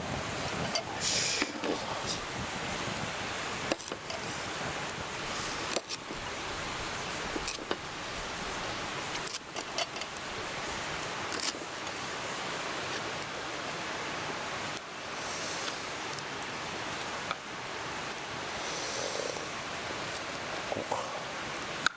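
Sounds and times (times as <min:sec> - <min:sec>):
mountain stream rushing: 0:00.0 - 0:21.9.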